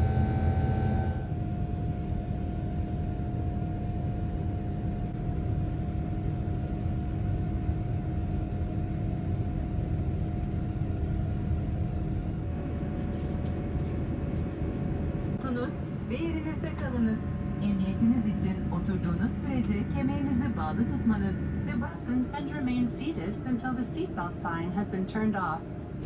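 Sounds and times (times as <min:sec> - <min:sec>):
airplane cabin rumble: 0:00.0 - 0:26.0
faint steady hums: 0:00.7 - 0:26.0.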